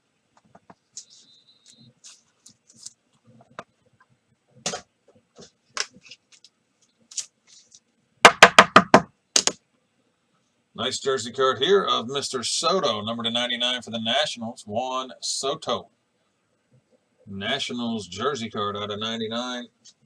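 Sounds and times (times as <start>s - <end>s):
sharp knocks on table: 8.3s - 9.6s.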